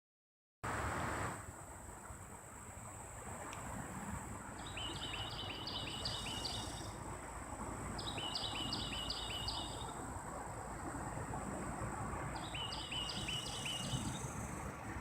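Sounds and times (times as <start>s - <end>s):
songbird chirping: 4.6s - 7.0s, 8.0s - 10.0s, 12.3s - 14.4s.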